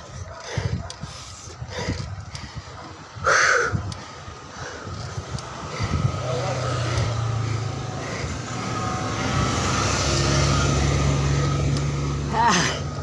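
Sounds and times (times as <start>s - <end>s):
car engine passing by: 5.3s - 13.0s.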